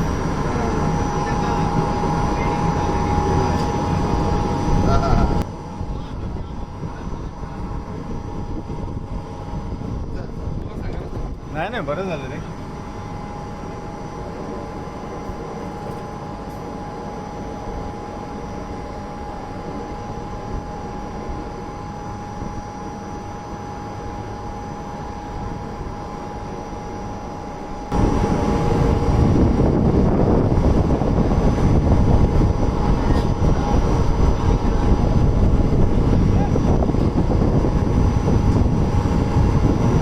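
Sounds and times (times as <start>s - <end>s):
train running noise inside coach: 0.0s - 8.2s, 31.6s - 37.8s.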